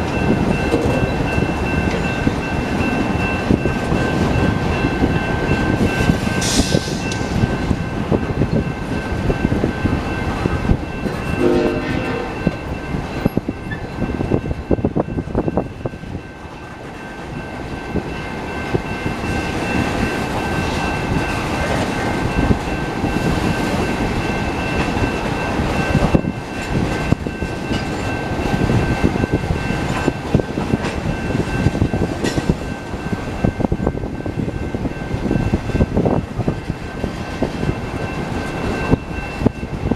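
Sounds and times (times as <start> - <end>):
steady high tone: 0.0 - 39.9
train wheels clattering on rails: 0.0 - 39.9
train horn note: 11.4 - 12.6.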